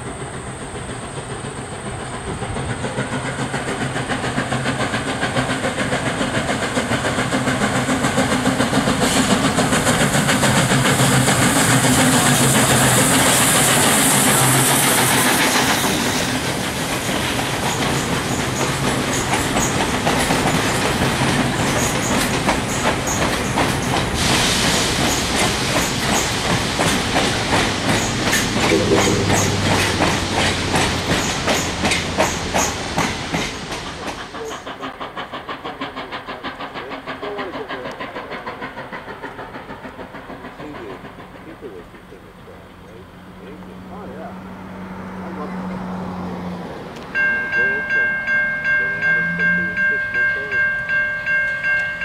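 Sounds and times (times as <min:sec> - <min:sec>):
wheels clicking over rail joints: 0:00.5 - 0:28.7, 0:29.4 - 0:44.0
strong hiss: 0:01.6 - 0:41.8
low engine tone: 0:28.6 - 0:30.9, 0:40.6 - 0:51.2.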